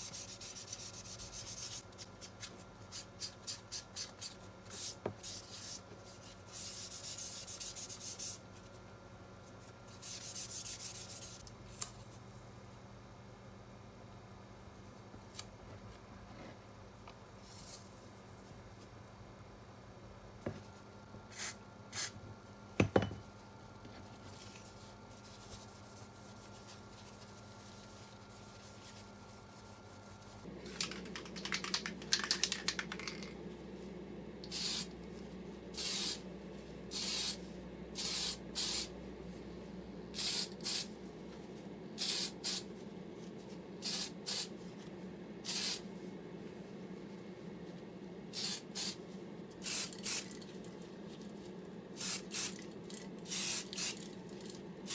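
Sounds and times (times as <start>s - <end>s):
low steady hum: 0.0s - 54.9s
spray paint hissing: 34.5s - 34.9s, 35.8s - 36.2s, 36.9s - 37.4s, 38.0s - 38.9s, 40.2s - 40.9s, 42.0s - 42.6s, 43.8s - 44.5s, 45.4s - 45.8s, 48.3s - 49.0s, 49.6s - 50.3s, 52.0s - 52.6s, 53.3s - 54.0s.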